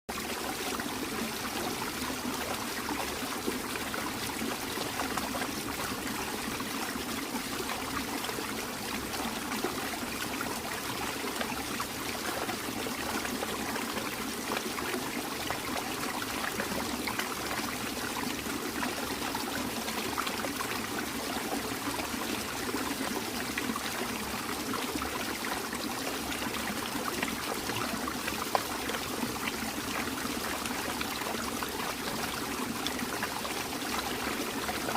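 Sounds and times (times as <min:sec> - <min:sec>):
small waterfall trickling: 0:00.1 - 0:34.9.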